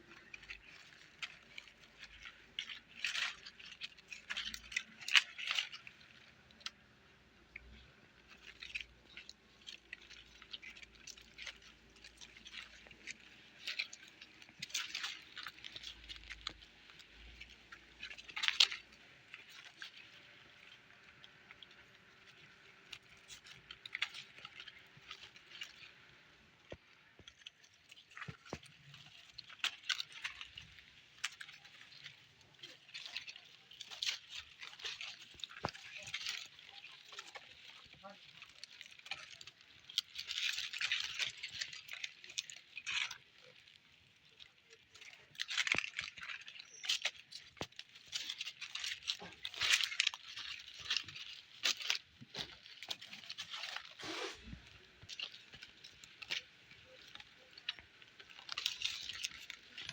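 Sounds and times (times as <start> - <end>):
puppies scratching and rustling: 7.6 - 59.9.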